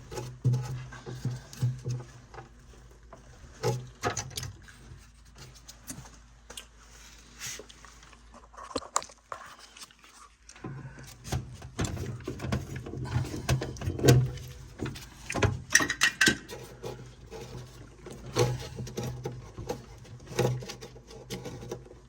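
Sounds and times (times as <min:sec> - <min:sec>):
metal parts clattering: 0:15.7 - 0:16.8.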